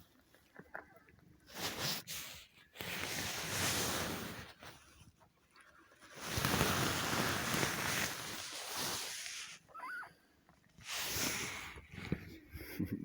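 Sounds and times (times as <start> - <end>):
towels rustling and rubbing: 1.5 - 5.1, 6.0 - 9.7
newborn kitten squeaking: 9.7 - 10.2.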